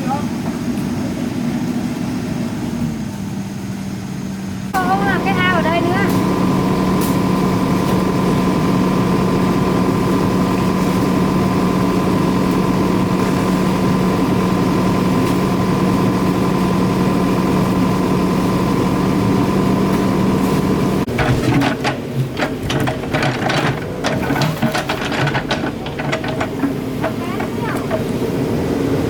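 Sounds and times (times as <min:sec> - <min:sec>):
engine running steadily: 0:00.0 - 0:29.0
clicking and rattling: 0:21.1 - 0:28.2.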